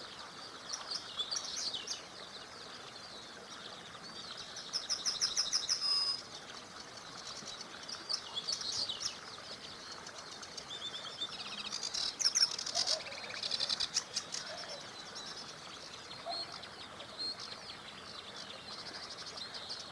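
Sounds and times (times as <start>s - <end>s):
faint small river rushing: 0.0s - 19.9s
songbirds singing and chirping: 0.0s - 19.9s
rapid rattling bird trill: 4.6s - 6.2s, 9.8s - 16.6s.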